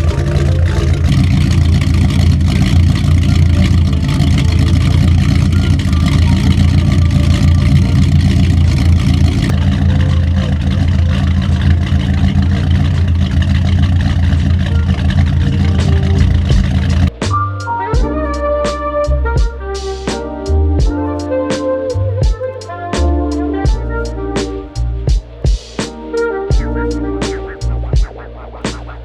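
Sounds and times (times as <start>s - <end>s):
boat engine running: 0.0s - 17.2s.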